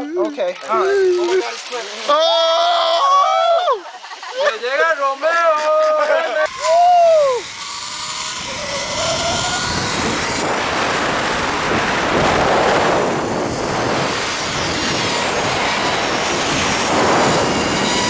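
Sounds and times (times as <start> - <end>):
zip line pulleys whirring on cable: 6.4 - 18.0
wind on microphone: 8.2 - 18.0.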